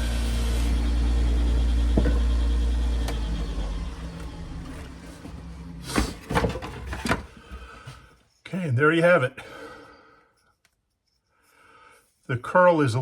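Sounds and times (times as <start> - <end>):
lathe motor winding down: 0.0 - 6.0.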